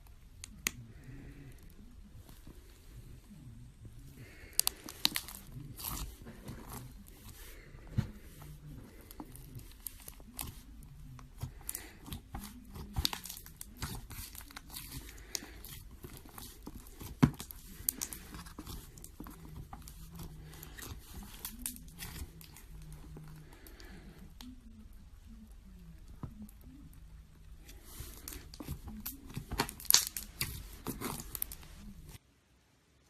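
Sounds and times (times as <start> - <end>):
slime squeezed crackling and popping: 4.3 - 7.0, 8.9 - 22.7, 28.1 - 31.8.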